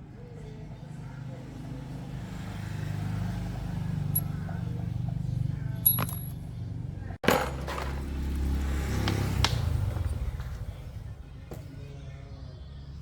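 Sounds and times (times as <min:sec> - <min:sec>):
sharp metallic clinks: 0:04.1 - 0:04.6, 0:05.8 - 0:06.5.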